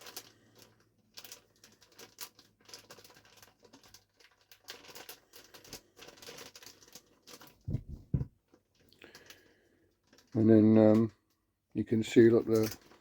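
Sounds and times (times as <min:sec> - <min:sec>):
plastic bags crinkling: 0:00.0 - 0:11.1, 0:12.2 - 0:13.0
soft thumps: 0:07.7 - 0:08.3.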